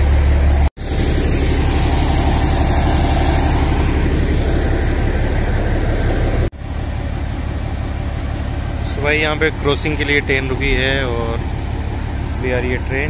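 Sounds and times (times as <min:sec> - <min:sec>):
train rumble and hiss: 0:00.0 - 0:13.0.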